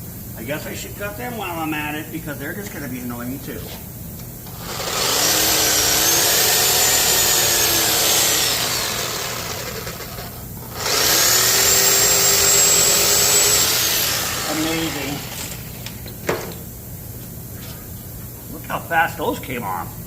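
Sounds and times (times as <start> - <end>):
power tool cutting metal: 4.5 - 15.8.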